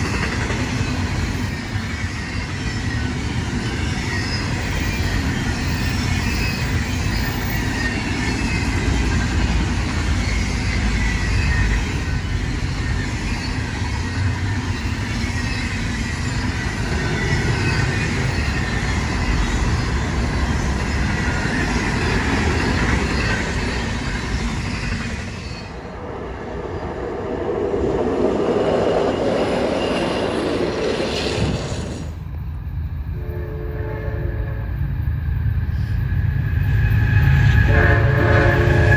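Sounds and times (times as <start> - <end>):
faint high wheel squeal: 0.0 - 25.9
train wheels rumbling and rattling: 0.0 - 38.9.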